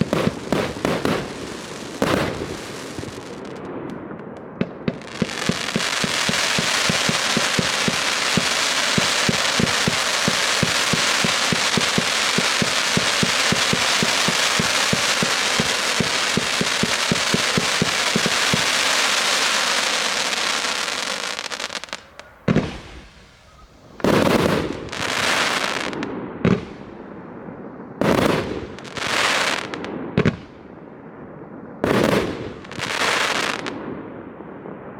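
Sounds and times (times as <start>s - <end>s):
firework bursts with hiss: 0.0s - 3.9s, 4.6s - 26.8s, 31.8s - 33.7s
firework crackle of rapid pops: 0.0s - 26.8s, 31.8s - 33.8s.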